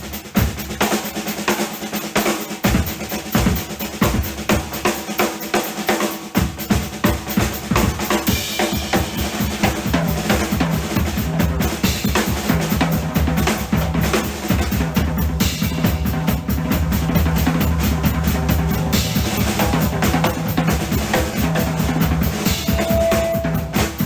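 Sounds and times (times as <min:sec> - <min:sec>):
rock drum kit solo: 0:00.0 - 0:24.0
rapid bass drum hits: 0:02.6 - 0:04.9, 0:06.4 - 0:24.0.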